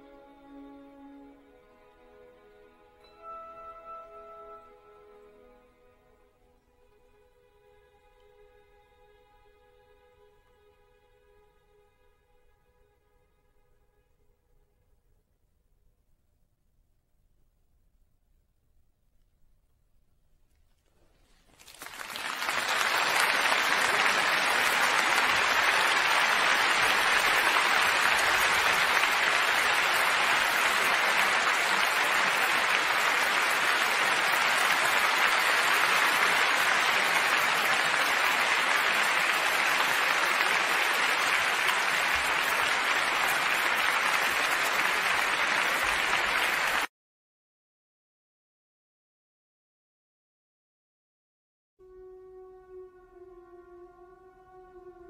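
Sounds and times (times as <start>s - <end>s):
audience applause: 21.5s - 46.9s.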